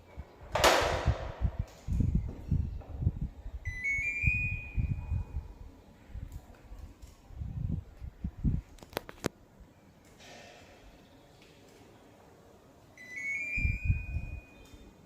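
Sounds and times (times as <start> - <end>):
electronic beep tone: 3.7 - 5.1, 13.0 - 14.6.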